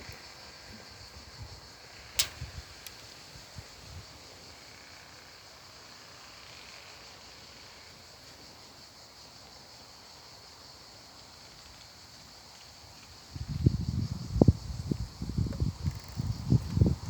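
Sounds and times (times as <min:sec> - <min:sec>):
insects chirring: 0:00.0 - 0:17.0
sharp click: 0:02.2 - 0:03.1.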